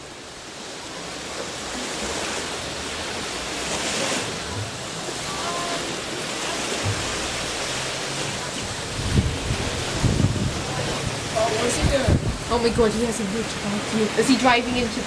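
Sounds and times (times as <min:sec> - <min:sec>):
sea surf rushing: 0:00.0 - 0:15.0
wind: 0:00.0 - 0:15.0.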